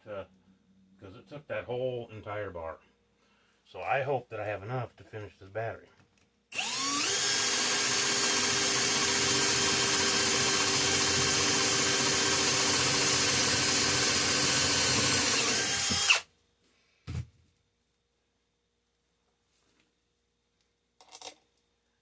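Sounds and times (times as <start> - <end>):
power tool motor whining: 6.5 - 16.2.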